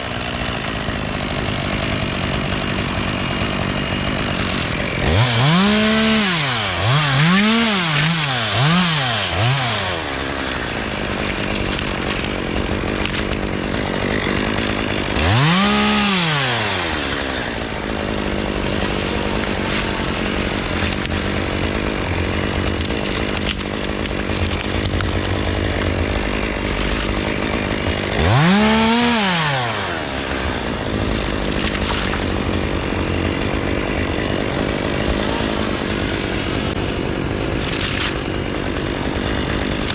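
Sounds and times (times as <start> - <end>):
chainsaw engine idling and revving: 0.0 - 39.9.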